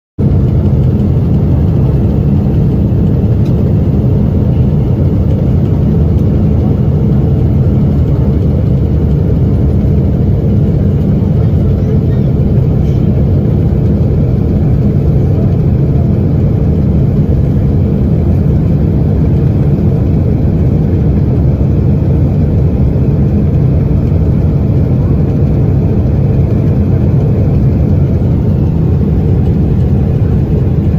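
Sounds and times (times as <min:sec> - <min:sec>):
jet airliner engines roaring: 0:00.2 - 0:30.9
rushing air: 0:26.2 - 0:30.9.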